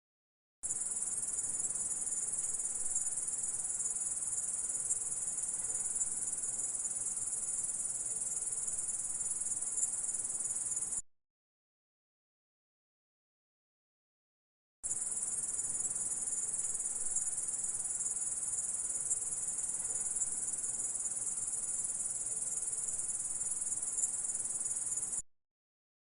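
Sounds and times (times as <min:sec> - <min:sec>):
grasshopper stridulating: 0:14.9 - 0:25.2.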